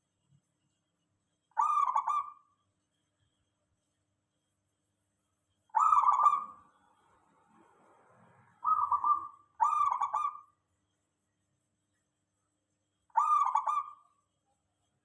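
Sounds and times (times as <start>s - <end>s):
dove cooing: 1.6s - 2.4s, 5.8s - 6.6s, 8.6s - 10.5s, 13.2s - 14.0s.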